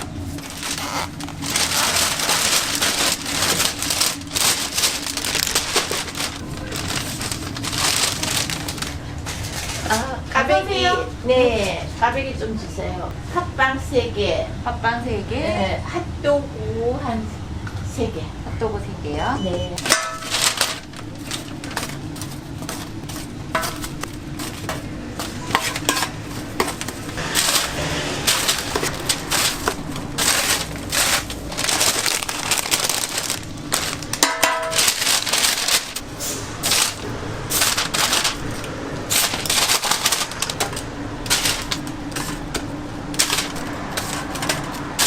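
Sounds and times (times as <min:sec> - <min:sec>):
rustling: 0:00.0 - 0:10.0, 0:19.8 - 0:45.0
utensils clattering and clicking: 0:00.0 - 0:10.1, 0:19.8 - 0:45.0
steady low hum: 0:00.0 - 0:45.0.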